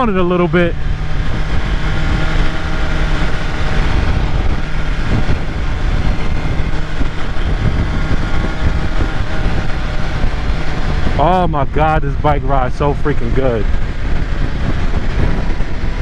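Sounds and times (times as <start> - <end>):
motorcycle engine running: 0.0 - 16.0
wind rushing over microphone: 0.0 - 16.0.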